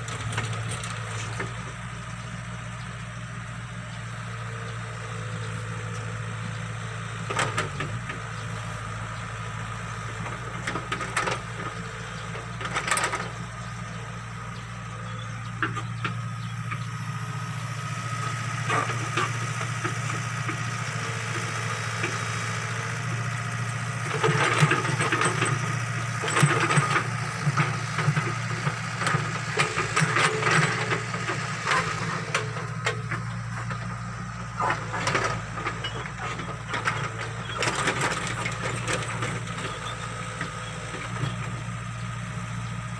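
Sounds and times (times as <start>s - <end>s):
excavator diesel engine running: 0.0s - 42.9s
bucket and arm clanking and scraping: 34.6s - 40.0s.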